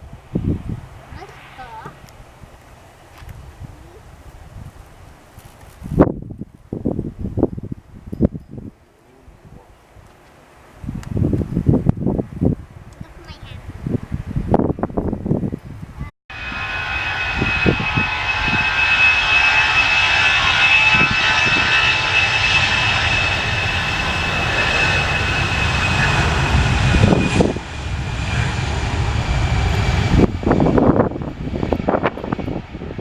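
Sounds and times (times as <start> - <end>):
jet engines whining and rumbling: 0.0 - 7.8, 16.3 - 33.0.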